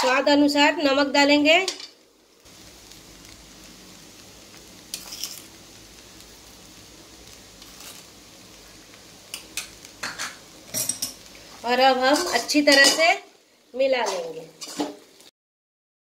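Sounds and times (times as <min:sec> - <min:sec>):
food sizzling in a pan: 0:00.0 - 0:15.3
metal spoon clinking on pan: 0:09.3 - 0:11.3, 0:12.2 - 0:13.1.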